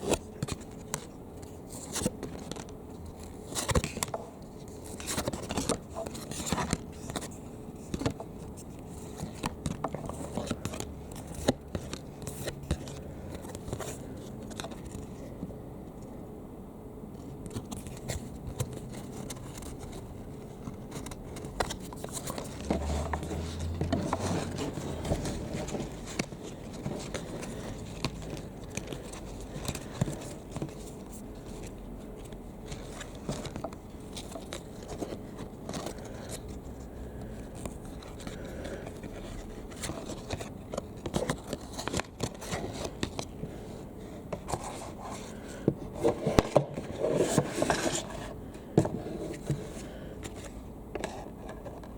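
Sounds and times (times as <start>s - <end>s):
trading cards and packaging handled: 0.0s - 16.2s, 17.1s - 51.9s.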